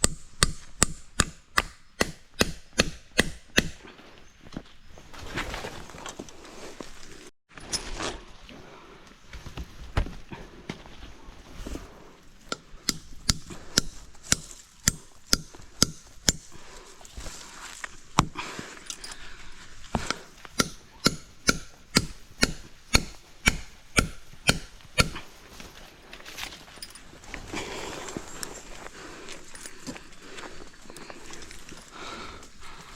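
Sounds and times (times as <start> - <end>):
chopping wood: 0.0 - 3.8, 20.0 - 25.2.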